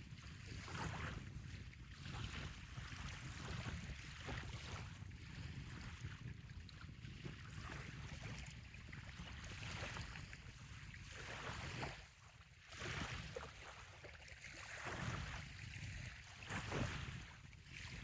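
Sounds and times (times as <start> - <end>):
small waves lapping on shore: 0.0 - 18.0
wind rumble on microphone: 0.0 - 18.0.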